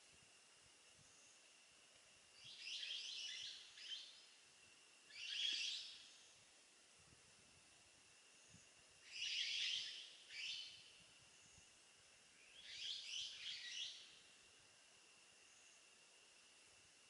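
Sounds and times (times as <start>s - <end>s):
harsh hissy bird calls: 2.4s - 4.4s, 5.1s - 6.4s, 8.4s - 11.7s, 12.3s - 14.4s.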